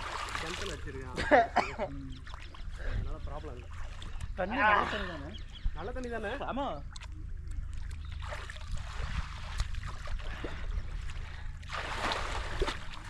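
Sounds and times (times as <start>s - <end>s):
loud splash: 0.0s - 1.1s, 11.7s - 13.0s
water splashing and sloshing: 0.0s - 13.0s.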